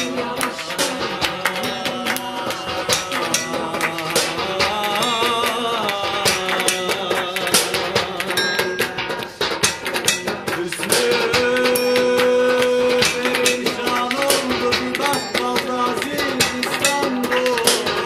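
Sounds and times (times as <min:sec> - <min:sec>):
drum and percussion strikes: 0:00.0 - 0:18.0
plucked string instrument: 0:00.0 - 0:18.0
wavering melody line: 0:08.4 - 0:09.4.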